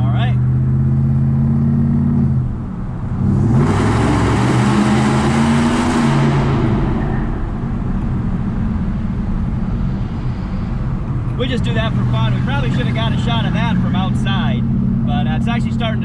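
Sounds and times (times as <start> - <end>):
truck exhaust drone: 0.0 - 16.0.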